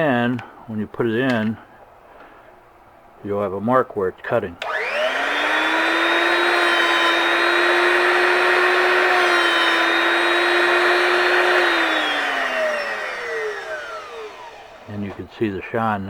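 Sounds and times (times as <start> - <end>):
grinding wheel hissing: 4.6 - 15.0
electric motor whining: 4.6 - 15.1.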